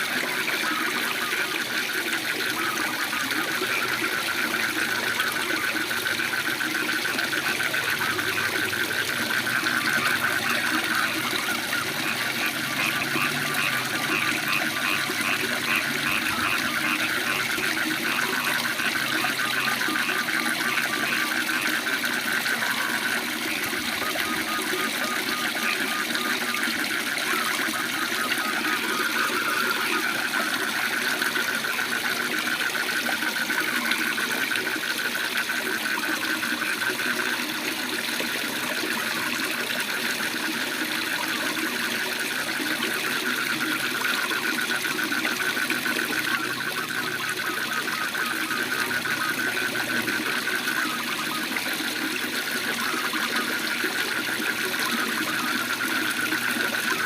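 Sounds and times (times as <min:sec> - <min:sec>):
frogs trilling: 0:00.0 - 0:57.0.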